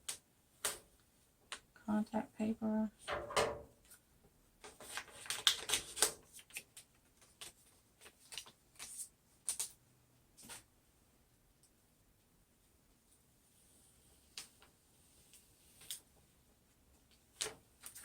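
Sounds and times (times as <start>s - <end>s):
transfer tape peeling crackle: 4.8s - 9.8s.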